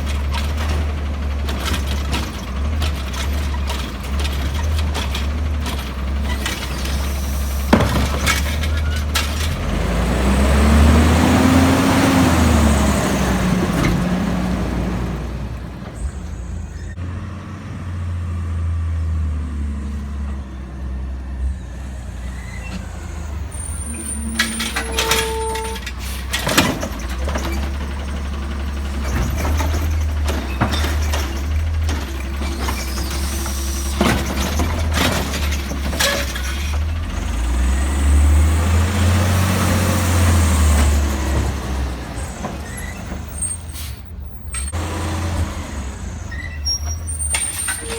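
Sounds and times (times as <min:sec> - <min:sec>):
metal clanks and knocks: 0:00.0 - 0:09.6, 0:23.9 - 0:37.0
garbage truck engine rumbling: 0:00.0 - 0:47.9.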